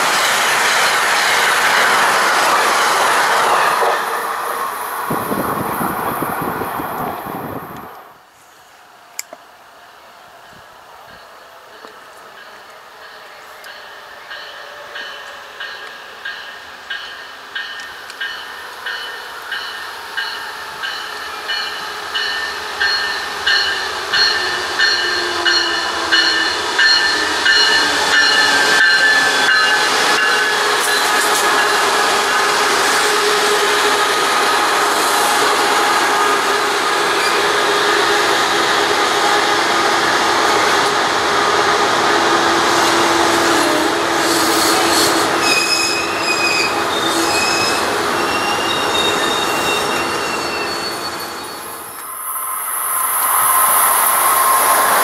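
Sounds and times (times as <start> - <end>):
train wheels rushing on rails: 0.0 - 8.3, 10.3 - 55.0
locomotive bell ringing: 12.4 - 32.0
high-pitched wheel squeal: 43.6 - 55.0.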